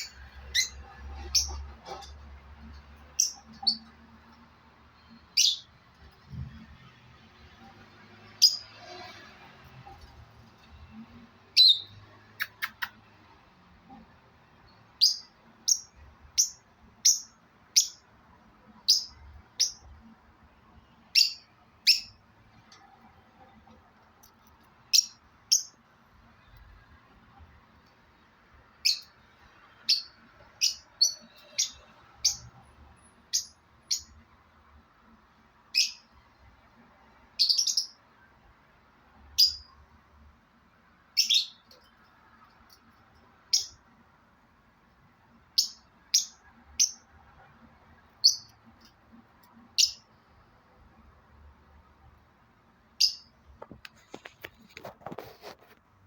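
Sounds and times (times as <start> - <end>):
parrot chirping: 0.0 - 4.0, 5.0 - 5.8, 8.3 - 8.7, 11.6 - 13.0, 14.9 - 18.1, 18.8 - 19.9, 21.1 - 22.8, 24.8 - 25.9, 28.7 - 29.2, 29.8 - 32.5, 33.2 - 34.2, 35.7 - 36.2, 37.3 - 38.0, 39.4 - 39.7, 41.1 - 41.8, 43.4 - 43.9, 45.5 - 47.1, 48.0 - 48.6, 49.6 - 50.1, 52.9 - 53.3.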